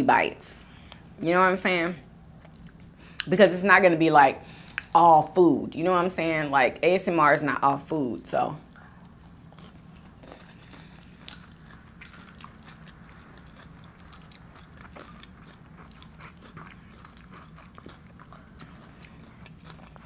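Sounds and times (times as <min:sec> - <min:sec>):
faint low hum: 0:00.0 - 0:20.0
crunching chewing: 0:08.7 - 0:20.0.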